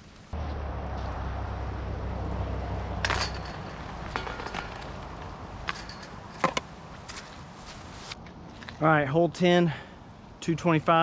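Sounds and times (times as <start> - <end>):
metal chains jangling: 3.0 - 4.8, 5.6 - 6.5.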